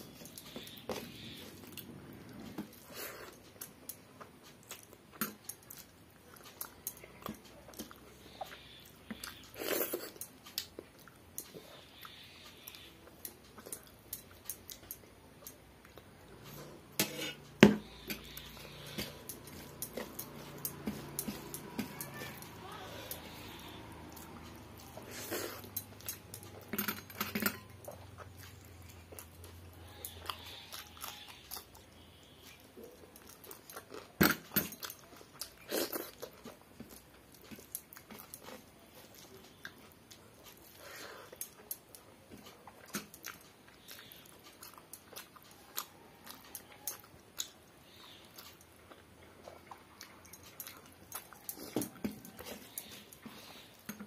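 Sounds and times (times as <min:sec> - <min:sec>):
chewing and lip-smacking: 0:18.0 - 0:54.0.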